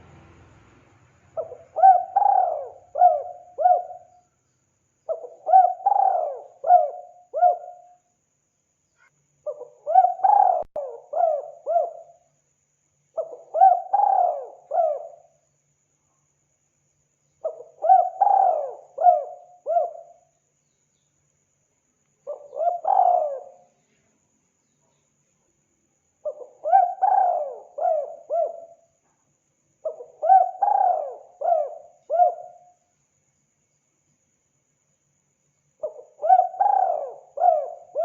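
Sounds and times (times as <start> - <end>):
dove cooing: 1.4 - 4.1, 5.1 - 7.9, 9.5 - 12.2, 13.2 - 15.3, 17.4 - 20.2, 22.3 - 23.7, 26.2 - 28.8, 29.8 - 32.6, 35.8 - 38.0.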